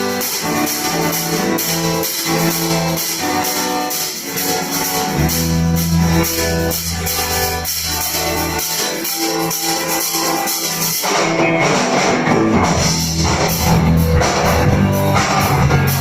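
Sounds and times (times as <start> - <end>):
high percussion beat: 0.0 - 16.0
rock band guitars: 0.0 - 16.0
low bass note: 5.1 - 8.6.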